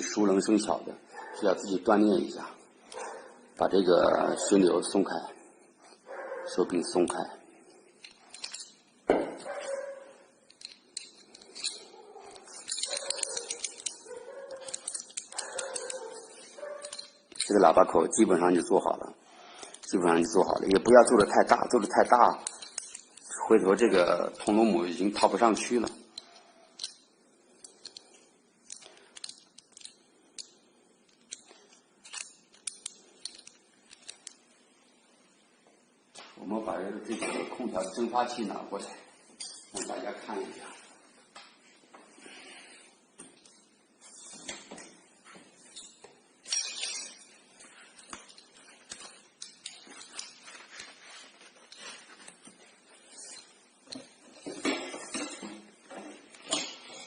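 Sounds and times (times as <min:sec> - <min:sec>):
metal tools clicking and tapping: 0:08.0 - 0:08.9, 0:10.4 - 0:17.8, 0:19.6 - 0:23.6, 0:24.4 - 0:34.4, 0:39.3 - 0:40.0, 0:45.7 - 0:52.6.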